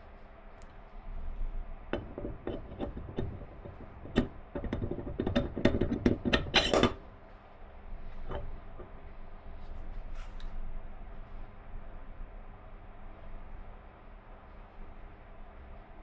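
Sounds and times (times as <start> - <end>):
parts and tools knocking: 2.0 - 7.1, 8.2 - 9.0
rattling clatter: 2.0 - 7.1.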